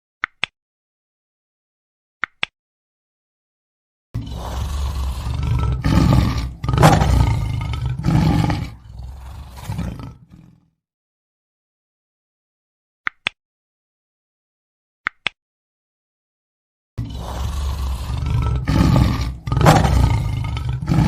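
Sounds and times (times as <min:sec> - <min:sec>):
lion roaring: 0:04.2 - 0:10.7, 0:17.0 - 0:21.0.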